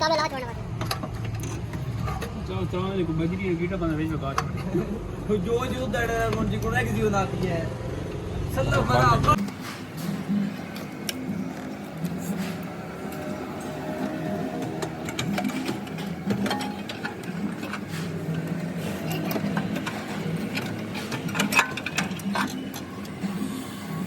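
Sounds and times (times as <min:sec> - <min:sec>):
mechanical clicks and knocks: 0:14.0 - 0:23.3.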